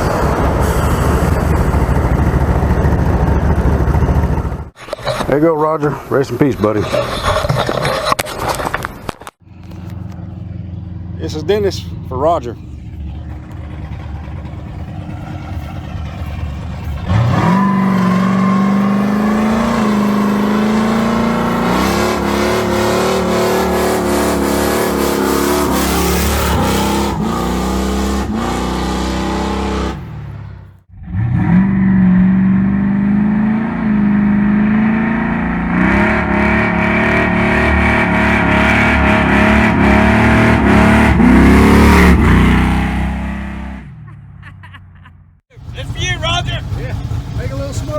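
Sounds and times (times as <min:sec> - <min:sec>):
car engine revving hard: 0:13.3 - 0:43.9.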